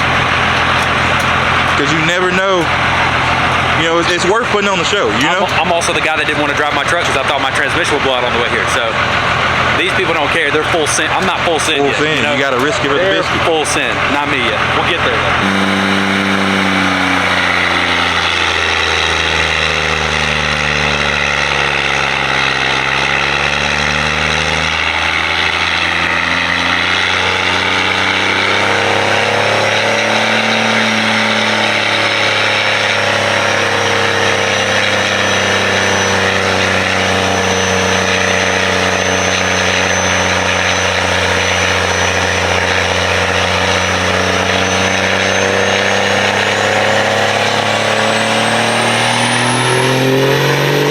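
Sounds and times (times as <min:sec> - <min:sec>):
truck engine on dyno: 0:00.0 - 0:50.9
faint high whine: 0:15.4 - 0:19.2.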